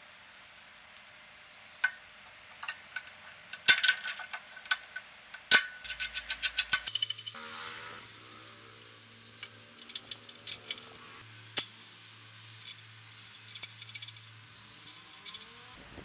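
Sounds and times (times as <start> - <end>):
sharp metal clinks and knocks: 1.5 - 8.0, 9.3 - 12.0, 12.6 - 15.7.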